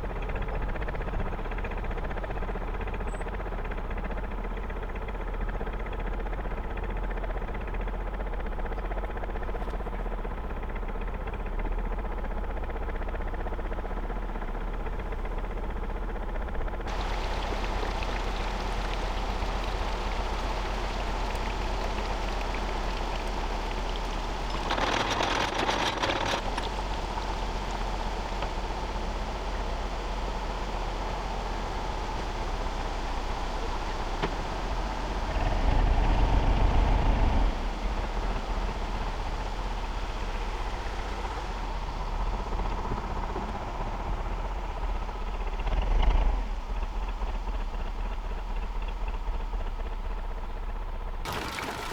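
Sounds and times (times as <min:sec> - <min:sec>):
diesel engine running: 0:00.0 - 0:51.9
steady hiss: 0:16.9 - 0:24.8.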